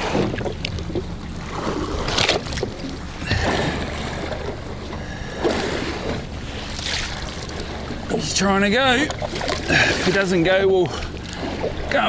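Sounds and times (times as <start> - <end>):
short splashes: 0.0 - 12.0
water slapping boat hull: 0.0 - 12.0.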